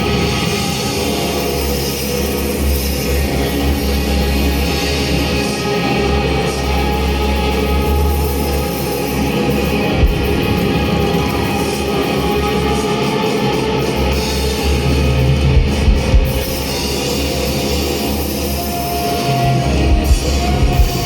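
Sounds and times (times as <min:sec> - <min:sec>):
live rock band playing: 0:04.5 - 0:21.0.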